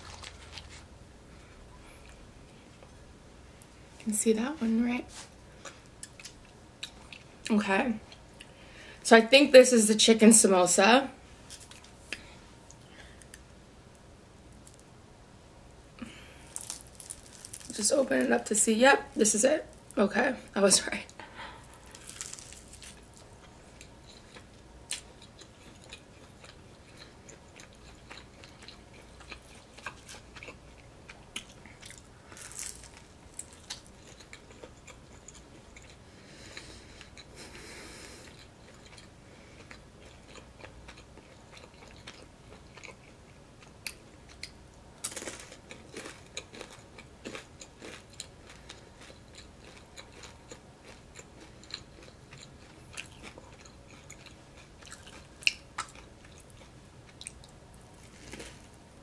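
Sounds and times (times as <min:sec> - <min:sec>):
chewing crisp pastry: 0:00.0 - 0:00.9, 0:05.1 - 0:08.6, 0:16.0 - 0:18.4, 0:21.2 - 0:58.8.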